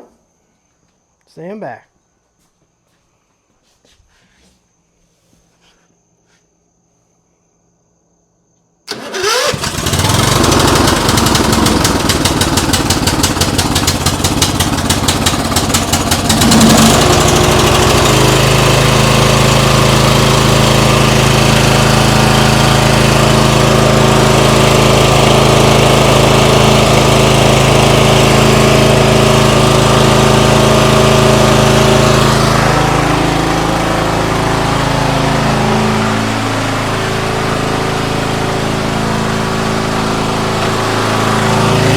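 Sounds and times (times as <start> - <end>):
lawn tractor engine running: 8.9 - 41.9.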